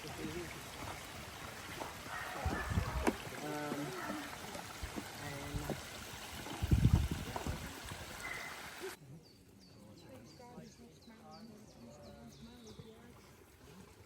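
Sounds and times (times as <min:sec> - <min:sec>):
faint distant voices: 0:01.7 - 0:06.7.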